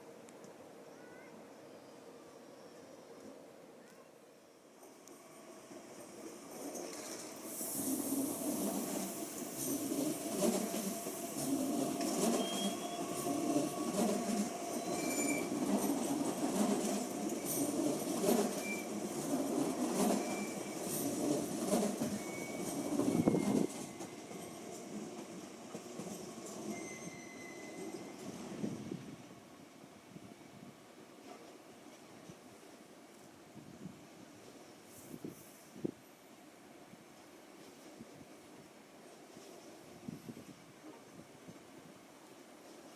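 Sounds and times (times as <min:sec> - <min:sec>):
train wheels rumbling and clicking: 0:06.0 - 0:27.2
high wheel squeals: 0:09.6 - 0:16.1, 0:17.3 - 0:19.0, 0:20.2 - 0:21.0, 0:22.0 - 0:24.2, 0:26.7 - 0:28.1.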